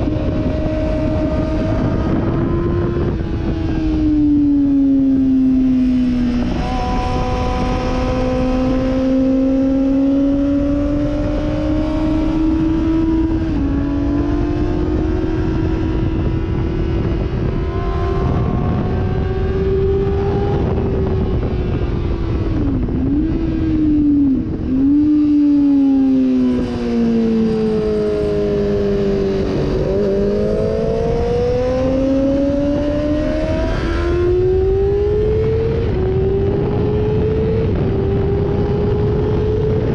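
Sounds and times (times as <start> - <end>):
sportbike engine running hard: 0.0 - 25.6
wind noise: 0.0 - 39.9.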